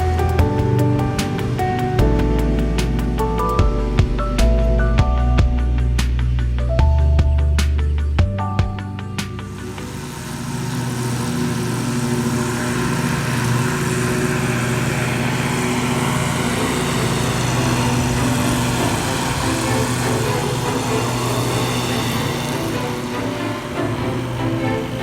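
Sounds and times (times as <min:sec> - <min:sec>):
lawn mower engine running: 0:00.0 - 0:06.1, 0:08.9 - 0:25.0.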